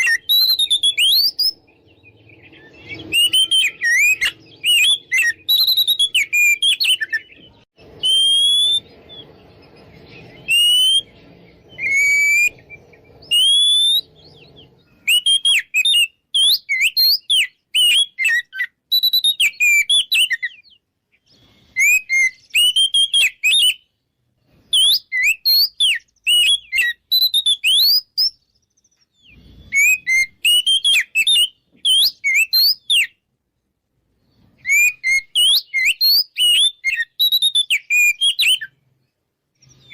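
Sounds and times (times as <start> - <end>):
bird singing whistled phrases: 0.0 - 24.0, 24.6 - 33.2, 34.6 - 38.8, 39.6 - 39.9
faint low hum: 7.2 - 15.3.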